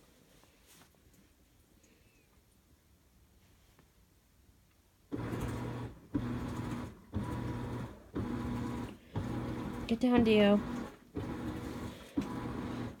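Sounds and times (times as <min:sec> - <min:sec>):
washing machine motor agitating: 0:05.1 - 0:13.0.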